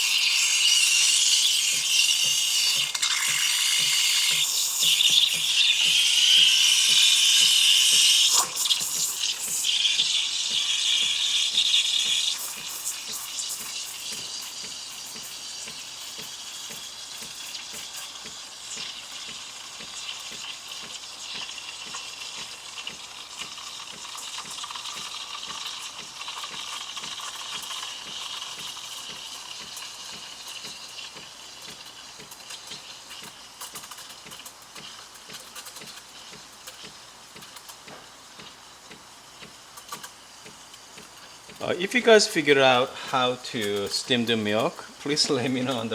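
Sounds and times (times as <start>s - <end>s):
steam wand hissing in milk: 0.0s - 45.9s.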